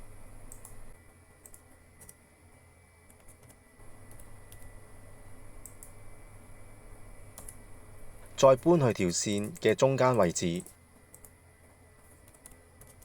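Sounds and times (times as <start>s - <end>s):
low steady hum: 0.0s - 13.0s
computer keyboard keystrokes: 0.5s - 0.8s, 1.4s - 2.2s, 3.1s - 4.7s, 5.6s - 6.0s, 7.4s - 7.6s, 9.3s - 11.4s, 12.1s - 13.0s
mouse clicks: 5.6s - 6.0s.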